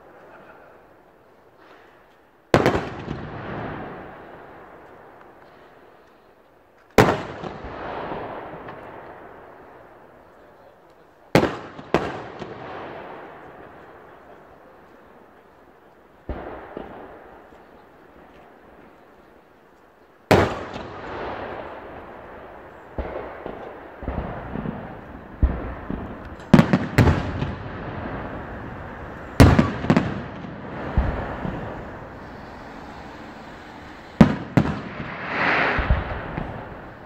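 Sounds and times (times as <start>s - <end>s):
fireworks crackling and hissing: 0.0s - 37.0s
firework shells bursting: 23.0s - 37.0s.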